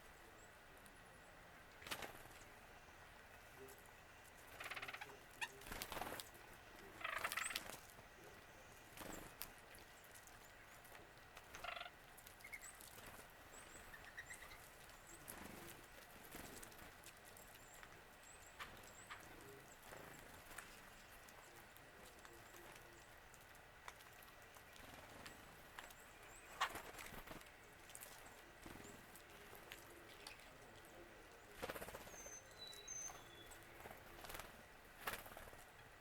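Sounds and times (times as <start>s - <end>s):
bird harsh calls: 4.5s - 5.7s, 6.9s - 7.7s, 11.5s - 12.8s, 13.6s - 14.7s.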